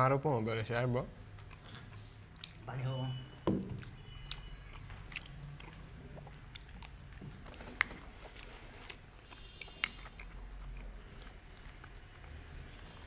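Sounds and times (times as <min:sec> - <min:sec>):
people chewing: 0:01.2 - 0:02.9, 0:03.7 - 0:13.0.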